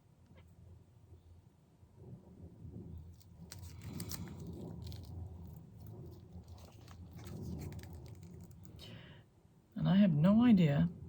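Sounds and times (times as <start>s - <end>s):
low steady hum: 0.0s - 11.0s
plastic cups clicking and crackling: 3.2s - 8.9s.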